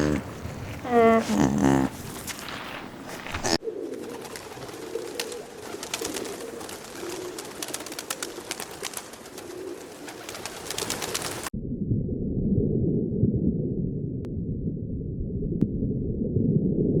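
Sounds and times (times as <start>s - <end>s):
pigeons cooing: 0.0s - 2.2s, 3.2s - 11.4s.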